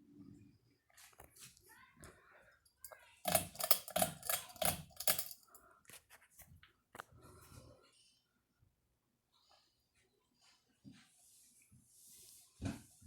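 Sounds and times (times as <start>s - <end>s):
sharp clicks and knocks: 3.2s - 5.5s.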